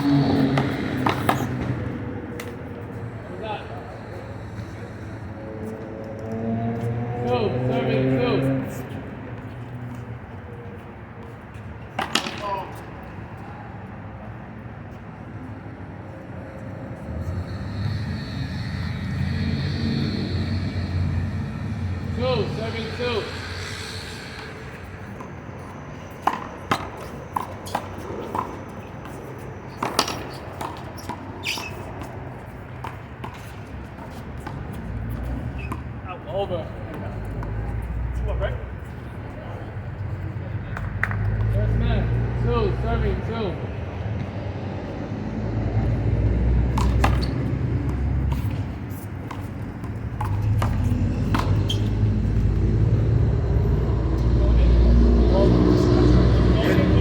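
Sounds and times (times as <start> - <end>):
handball hitting wall and pavement: 0.2 - 2.8, 24.4 - 36.0, 46.6 - 52.4.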